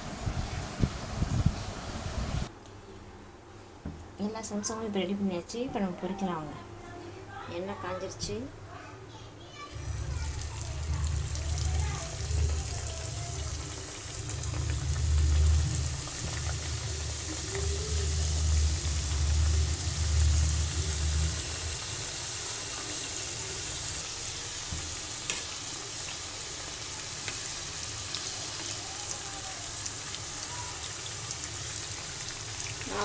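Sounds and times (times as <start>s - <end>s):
food deep-frying in oil: 9.7s - 33.0s
low rumble: 9.8s - 22.3s.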